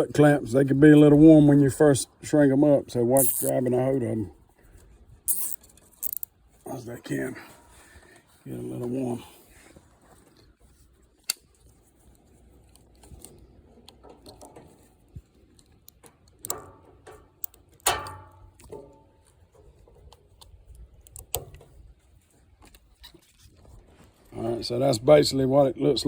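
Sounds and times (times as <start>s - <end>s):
metal tools clicking and knocking: 3.2s - 3.5s, 5.3s - 6.3s, 15.9s - 19.3s
loud metal clanks: 17.8s - 18.9s.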